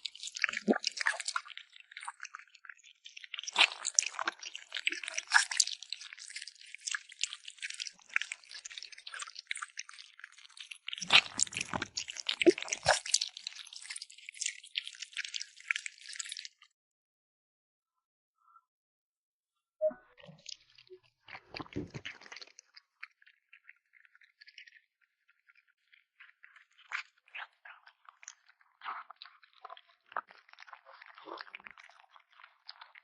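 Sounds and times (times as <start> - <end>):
kitten chewing and licking: 3.2 - 16.4, 21.3 - 33.0.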